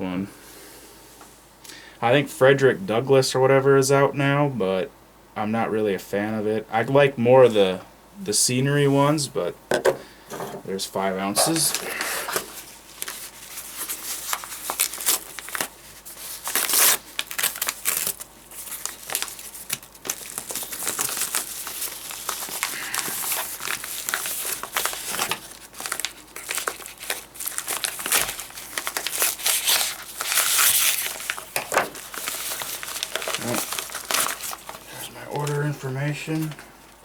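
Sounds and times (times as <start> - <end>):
packing material crinkling: 11.3 - 37.0.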